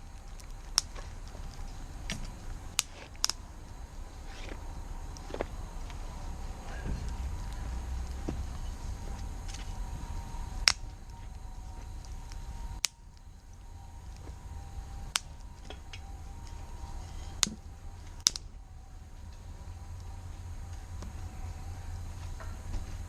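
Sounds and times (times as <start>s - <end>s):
campfire pops and cracks: 0.0s - 3.5s, 7.0s - 14.5s, 15.1s - 16.6s, 17.3s - 18.5s
low steady rumble: 0.0s - 23.0s.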